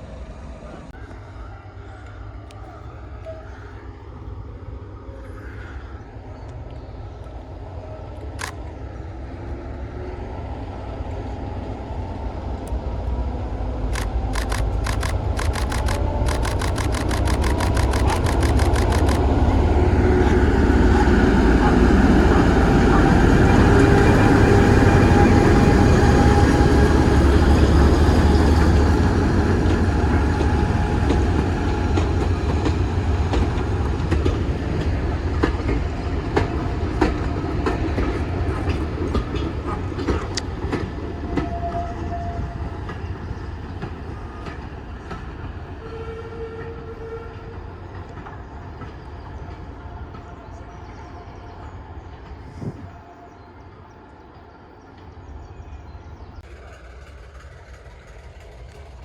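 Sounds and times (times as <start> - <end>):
diesel locomotive engine rumble: 0.0 - 59.0
train wheels clicking over joints: 13.8 - 41.8, 56.4 - 59.0.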